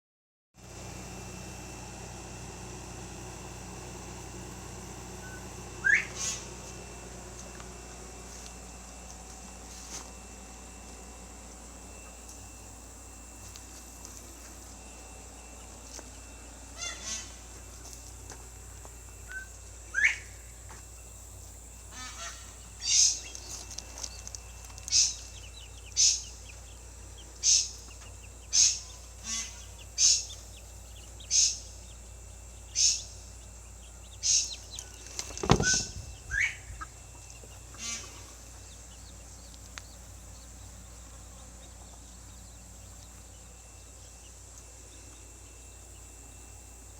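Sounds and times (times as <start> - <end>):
chicken squawking: 5.8 - 6.5, 16.8 - 17.4, 21.9 - 23.2, 28.5 - 30.3, 35.6 - 37.0, 37.7 - 38.3.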